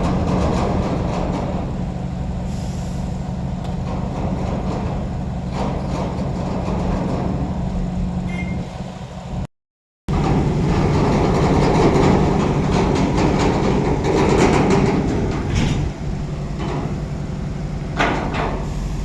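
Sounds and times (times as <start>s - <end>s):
diesel truck engine running: 10.1s - 19.0s
air hiss: 18.6s - 19.0s.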